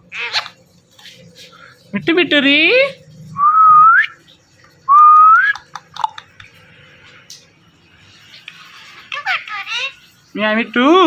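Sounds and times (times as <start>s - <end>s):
parrot whistling: 4.9s - 5.6s.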